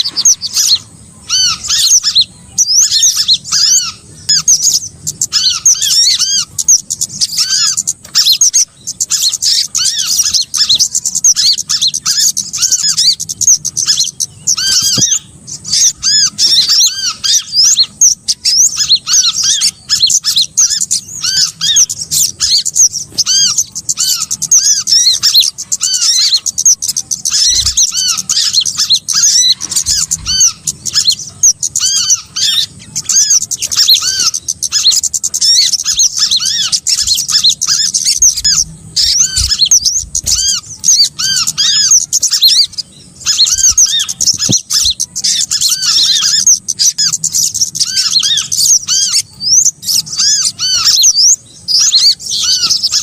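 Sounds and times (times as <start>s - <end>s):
songbirds chirping: 0.0s - 53.0s.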